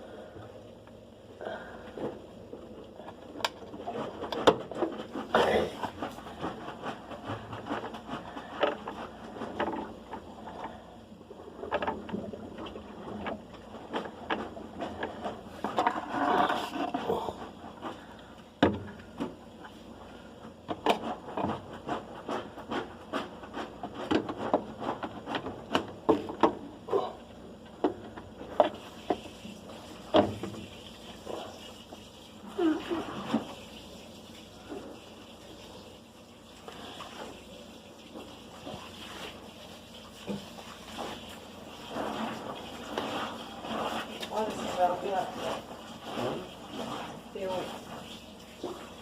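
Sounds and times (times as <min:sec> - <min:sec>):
knocks clicks and scrapes of parts: 0:01.9 - 0:10.8.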